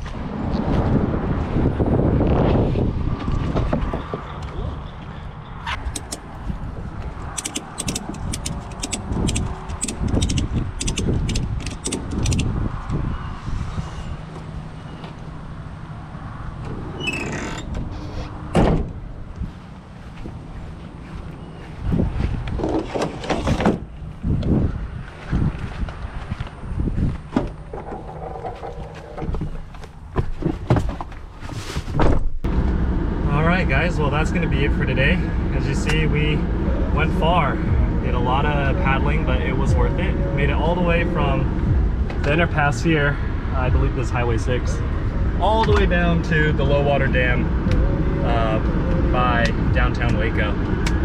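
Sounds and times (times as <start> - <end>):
wind rumbling on microphone: 0.0 - 51.0
sharp high clicks: 7.3 - 12.5.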